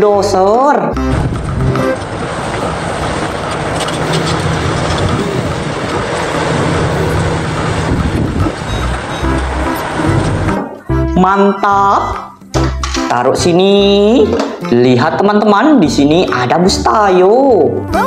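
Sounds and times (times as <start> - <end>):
bulldozer engine running: 0.9 - 11.2.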